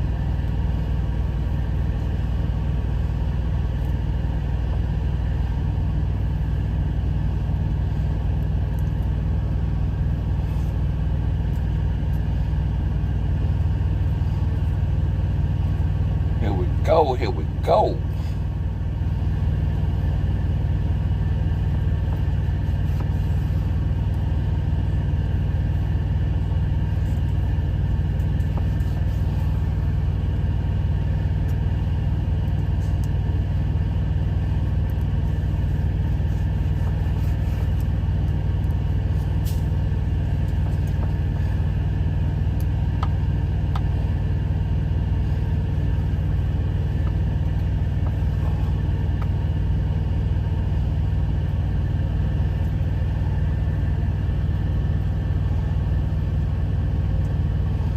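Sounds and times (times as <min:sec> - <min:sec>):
truck engine idling: 0:00.0 - 0:57.9.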